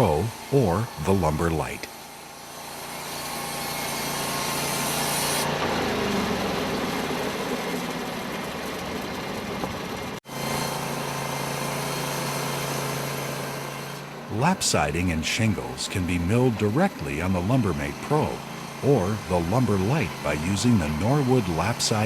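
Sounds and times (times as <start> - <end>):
sawmill engine drone: 0.0 - 22.0
saw blade cutting wood: 2.6 - 5.5, 10.3 - 14.1, 15.0 - 22.0.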